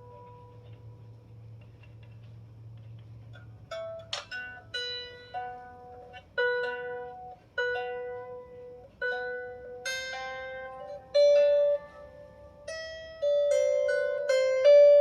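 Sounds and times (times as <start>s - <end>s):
lyre harp notes plucked: 3.3s - 15.0s.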